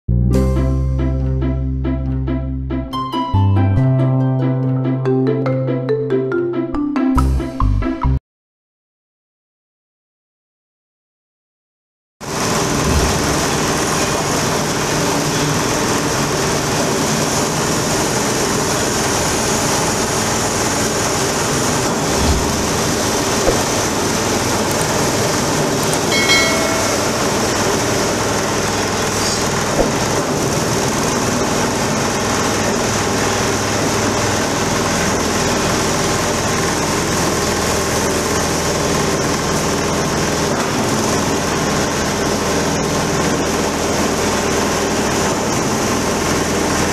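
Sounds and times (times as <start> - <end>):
shredding machine drone: 12.2 - 46.9.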